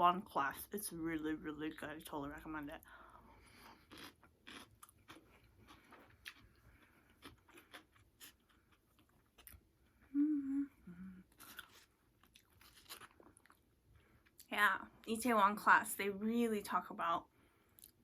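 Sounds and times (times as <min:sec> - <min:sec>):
chewing and crunching food: 0:03.0 - 0:10.0, 0:11.2 - 0:14.5, 0:17.7 - 0:18.0
person humming: 0:10.1 - 0:11.3.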